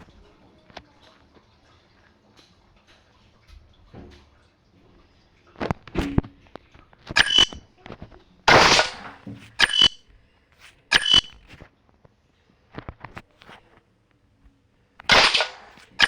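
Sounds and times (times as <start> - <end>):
sharp metallic clanks ringing: 7.2 - 7.6, 8.5 - 10.0, 10.9 - 11.4.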